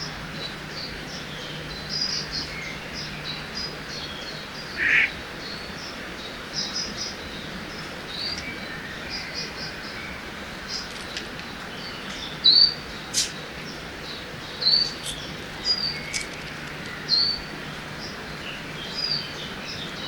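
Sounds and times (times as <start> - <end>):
small birds chirping: 0.4 - 20.0
harsh bird call: 4.8 - 5.2.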